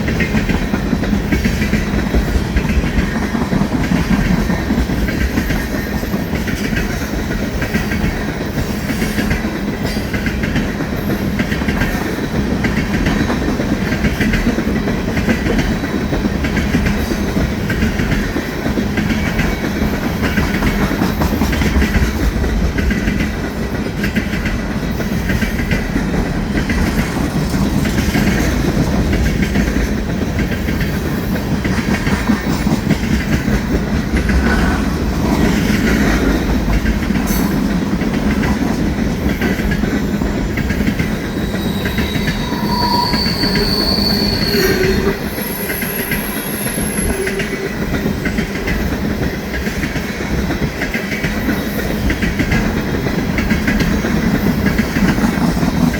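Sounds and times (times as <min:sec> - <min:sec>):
freight train wheels rumbling: 0:00.0 - 0:55.9
train wheels squealing: 0:04.0 - 0:22.0, 0:39.4 - 0:50.7.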